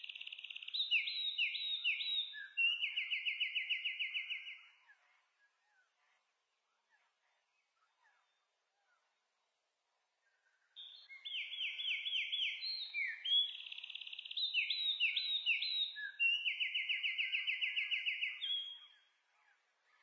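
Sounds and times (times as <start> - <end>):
songbird singing with trills: 0.0 - 6.2, 10.3 - 20.0.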